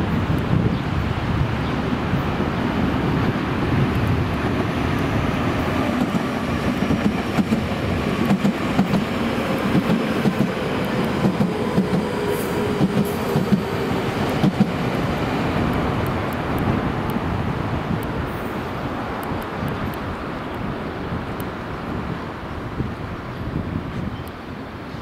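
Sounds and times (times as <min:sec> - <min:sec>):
train wheels clattering on rail joints: 0:04.0 - 0:16.6.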